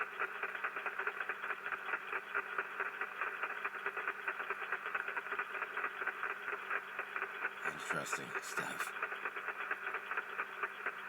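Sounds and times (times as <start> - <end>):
crackling radio static hiss: 4.6 - 10.8.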